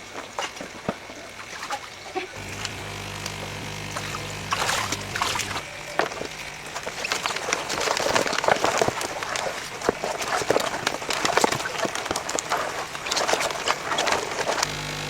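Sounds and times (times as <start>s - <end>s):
water splashing and sloshing: 0.0s - 14.7s
low motor hum: 2.4s - 8.8s, 14.6s - 15.0s.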